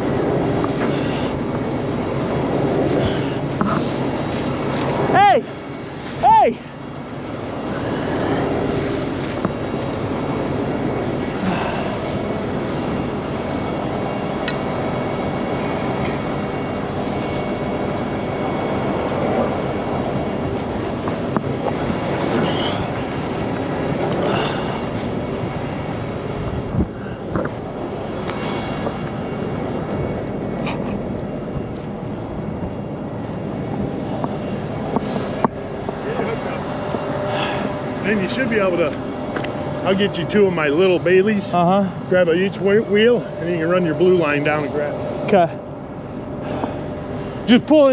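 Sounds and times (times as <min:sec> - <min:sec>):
heavy diesel engines running: 0:00.0 - 0:47.9
high squeals: 0:28.5 - 0:33.2.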